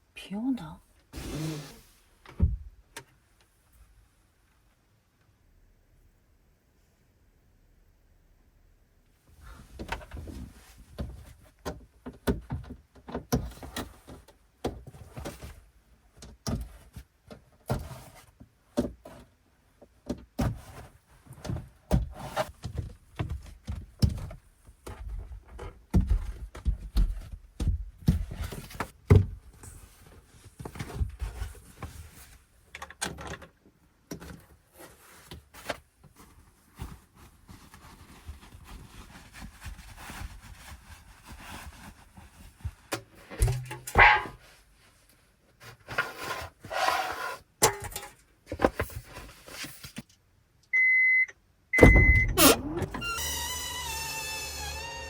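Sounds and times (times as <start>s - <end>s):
objects knocking and thumping: 43.2s - 44.4s.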